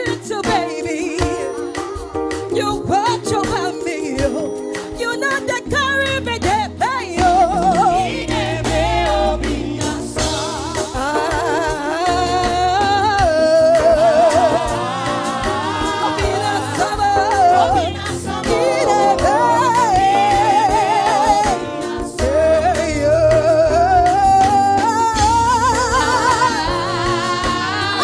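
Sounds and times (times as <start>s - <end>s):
bass: 0.0s - 28.0s
drums: 0.0s - 28.0s
keyboard chords: 0.0s - 28.0s
lead singer holding notes: 0.0s - 28.0s
backing singers: 7.0s - 28.0s.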